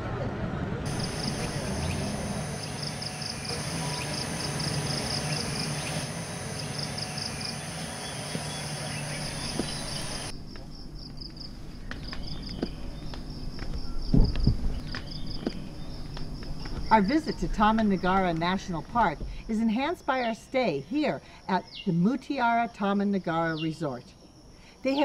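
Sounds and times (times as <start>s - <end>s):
low hum: 0.8s - 19.5s
insects chirping: 0.9s - 25.0s.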